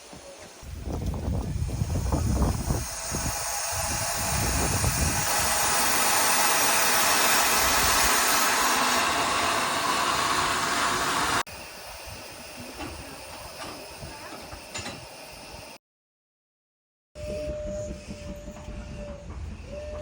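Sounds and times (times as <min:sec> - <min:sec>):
steam engine venting steam: 0:00.0 - 0:15.8.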